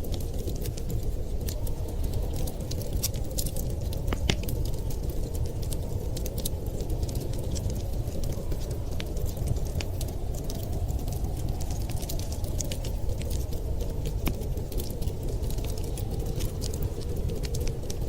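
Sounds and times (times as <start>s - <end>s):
snowstorm wind rumbling: 0.0s - 18.0s
wood fire crackling: 0.0s - 18.0s.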